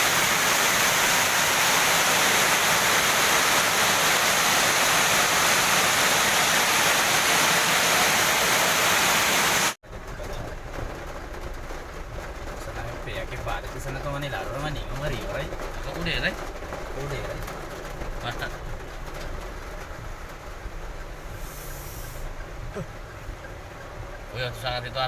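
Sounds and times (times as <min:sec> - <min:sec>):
heavy rain hissing: 0:00.0 - 0:09.8, 0:21.0 - 0:23.0.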